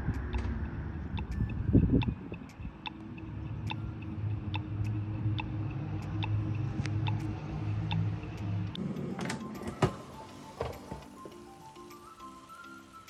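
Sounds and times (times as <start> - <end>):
mechanical timer ticking: 1.1 - 8.8
kitchen appliance humming: 8.8 - 13.0.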